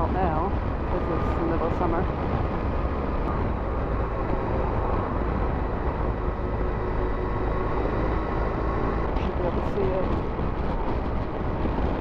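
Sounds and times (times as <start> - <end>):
motorcycle engine hum: 0.0 - 12.0
wind and road noise: 0.0 - 12.0.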